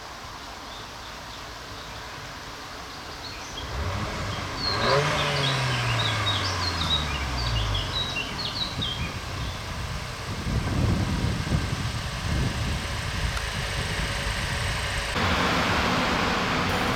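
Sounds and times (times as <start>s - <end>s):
birds chirping: 3.0s - 9.7s
car engine starting and revving: 3.4s - 16.9s.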